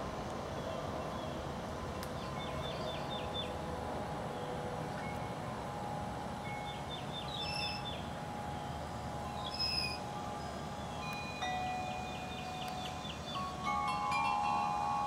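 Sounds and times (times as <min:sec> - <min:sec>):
songbird chirping: 0:00.6 - 0:03.6, 0:06.4 - 0:15.0
clear ringing notes: 0:02.3 - 0:15.0.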